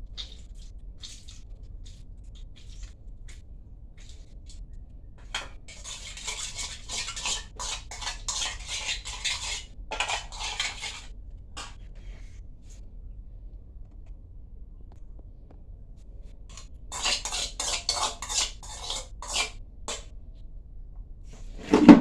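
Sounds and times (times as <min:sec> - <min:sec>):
cutlery scraping a dish: 0:05.2 - 0:11.8, 0:16.5 - 0:20.1, 0:21.6 - 0:22.0.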